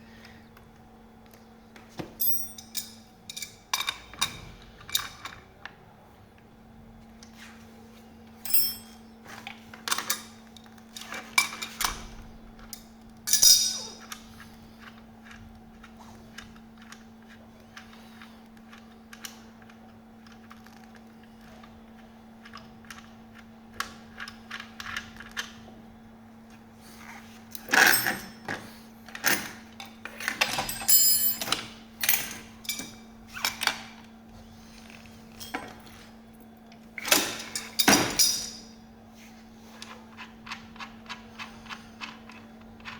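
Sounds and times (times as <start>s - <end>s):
metal parts clicking and clinking: 2.2s - 5.4s, 8.4s - 9.0s, 12.7s - 14.2s, 27.6s - 33.8s, 35.3s - 35.8s, 37.0s - 38.7s.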